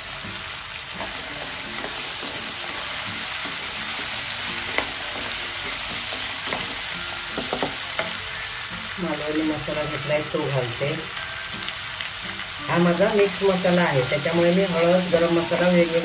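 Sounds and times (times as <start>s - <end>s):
potatoes sizzling in hot oil: 0.0s - 16.0s
spatula knocking and scraping pan: 1.0s - 8.2s.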